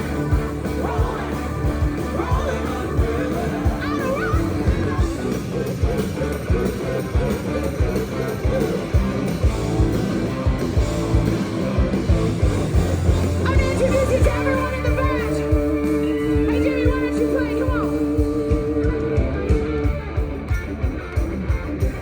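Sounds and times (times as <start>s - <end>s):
wavering voice-like line: 0.0s - 9.4s
electric guitar: 0.0s - 22.0s
steady drum beat: 0.0s - 22.0s.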